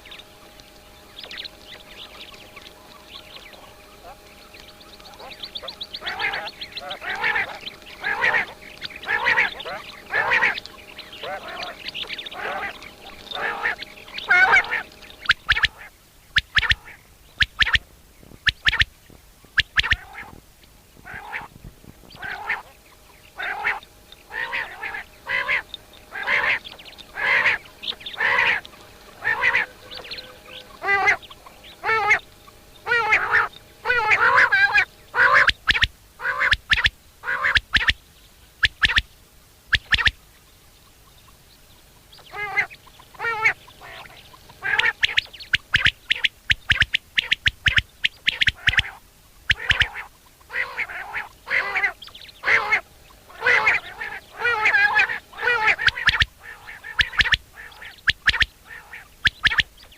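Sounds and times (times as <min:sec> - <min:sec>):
birds calling harsh nasal notes: 0:00.0 - 0:59.9.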